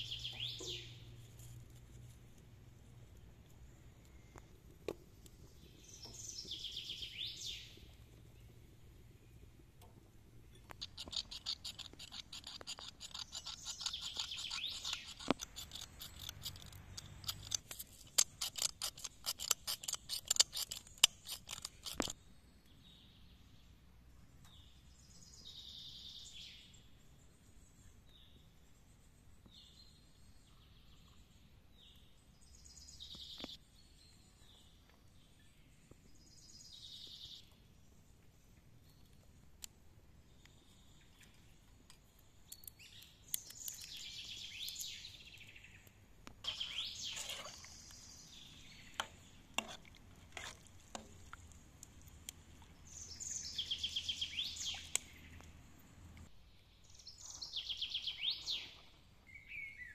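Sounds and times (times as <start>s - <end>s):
birds chirping: 5.2s - 22.2s, 40.4s - 49.7s, 50.4s - 55.6s.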